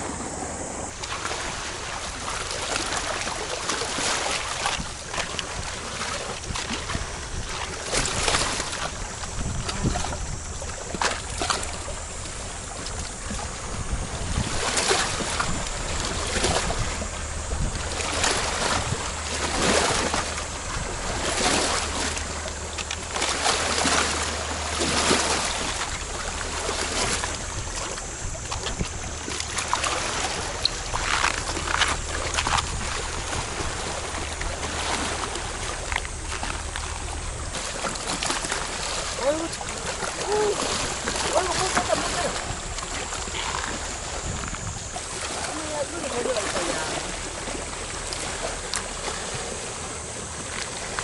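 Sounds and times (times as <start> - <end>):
wind buffeting microphone: 0.0 - 50.4
seawater lapping and splashing: 0.0 - 51.0.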